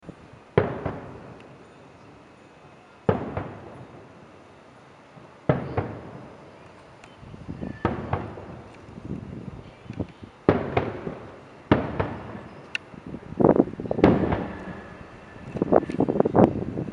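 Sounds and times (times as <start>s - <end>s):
fireworks booming with echoes: 0.5s - 1.7s, 3.0s - 4.2s, 5.2s - 6.7s, 7.4s - 9.1s, 10.4s - 16.9s
small firework bangs: 0.5s - 1.8s, 3.0s - 4.2s, 5.2s - 9.1s, 10.0s - 12.9s, 13.8s - 16.1s.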